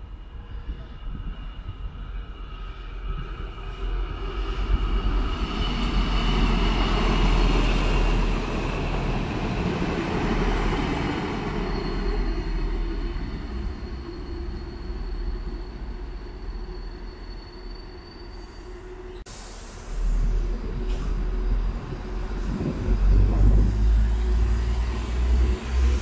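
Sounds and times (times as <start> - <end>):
train wheels rumbling and rattling: 20.0 - 26.0.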